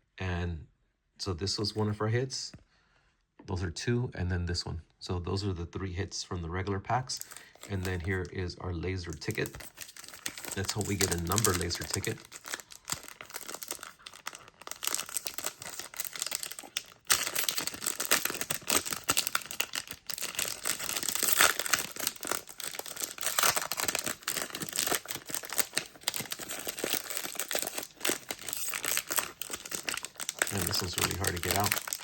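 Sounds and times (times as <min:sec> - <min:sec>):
card pack wrapper tearing: 0:07.1 - 0:08.3, 0:09.0 - 0:32.0.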